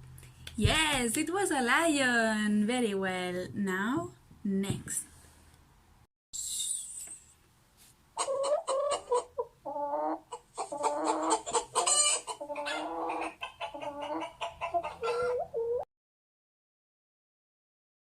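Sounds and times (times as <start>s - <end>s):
hen clucking and cackling: 8.2s - 15.8s.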